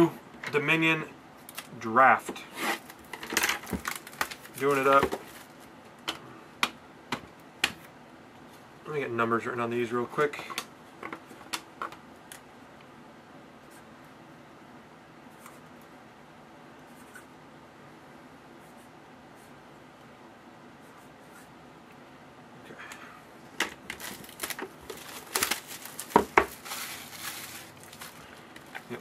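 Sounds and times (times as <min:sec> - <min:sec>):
card packaging torn and crinkled: 0:02.7 - 0:05.6, 0:23.7 - 0:29.0.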